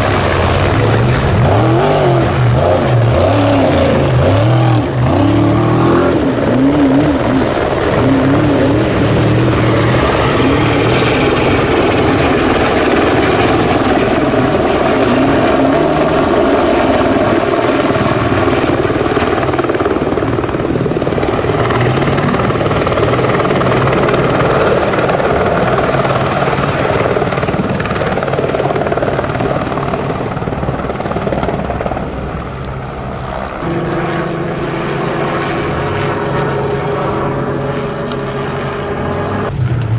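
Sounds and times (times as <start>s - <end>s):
race truck engine: 0.0s - 19.0s
helicopter flying overhead: 0.0s - 39.9s.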